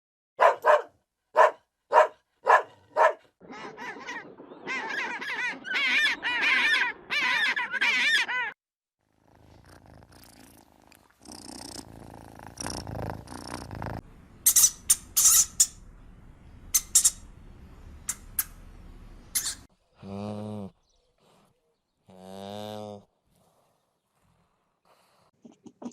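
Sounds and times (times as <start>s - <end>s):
farm animals calling: 3.4s - 8.6s
quick high chirps: 14.4s - 15.8s, 16.7s - 17.3s.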